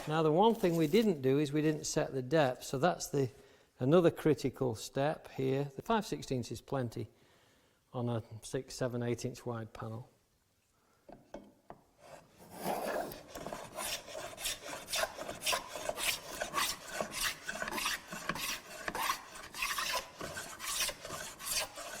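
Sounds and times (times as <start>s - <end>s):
plough plane shaving wood: 12.0s - 22.0s.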